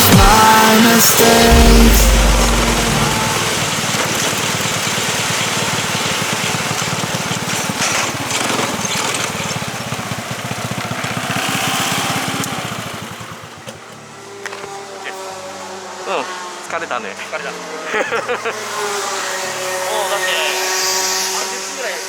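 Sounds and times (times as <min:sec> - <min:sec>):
kart engine running: 0:00.0 - 0:22.0
wind and road noise: 0:01.6 - 0:15.3.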